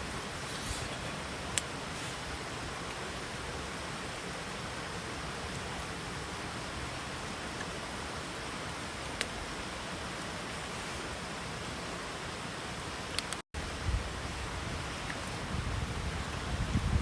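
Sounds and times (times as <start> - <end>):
hiss of water: 0.0 - 17.0
faint click: 13.2 - 13.4.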